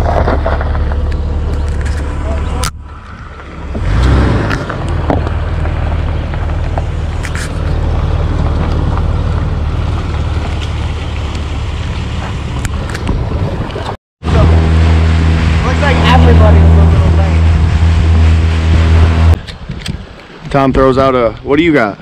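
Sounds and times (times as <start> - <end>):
car engine running at low revs: 0.0 - 19.4
wind noise on microphone: 12.0 - 21.0.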